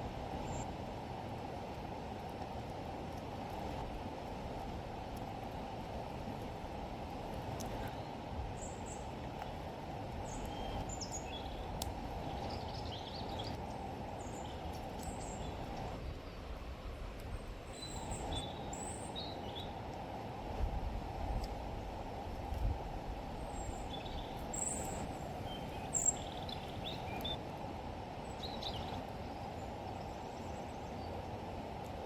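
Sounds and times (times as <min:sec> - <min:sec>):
birds chirping: 0:10.2 - 0:16.5, 0:23.4 - 0:27.4.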